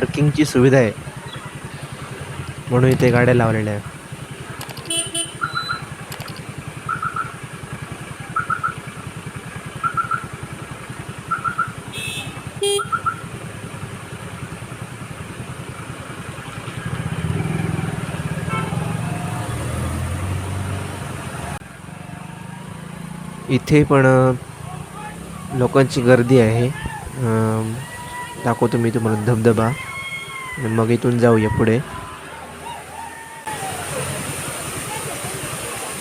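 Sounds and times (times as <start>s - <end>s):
motorcycle engine running: 0.0s - 19.4s, 21.2s - 28.4s.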